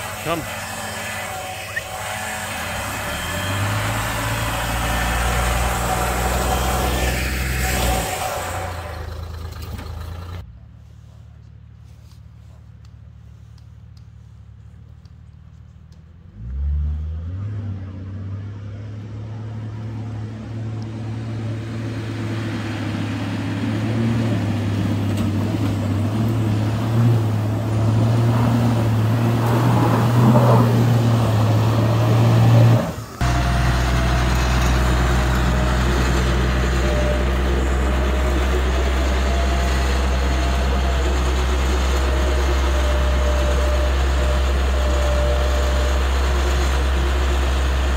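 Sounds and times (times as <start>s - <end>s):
low steady engine hum: 0.0s - 47.9s
vehicle engine starting and running: 0.0s - 47.9s.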